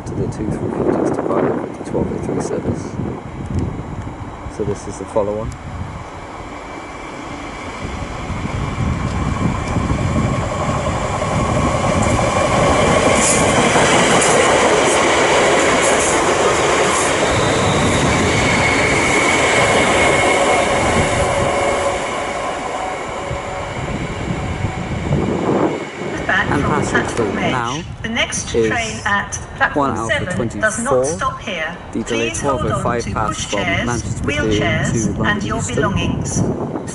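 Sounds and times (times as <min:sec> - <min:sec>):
train wheels rumbling on rails: 0:00.0 - 0:30.3
high-pitched wheel squeals: 0:17.1 - 0:19.1.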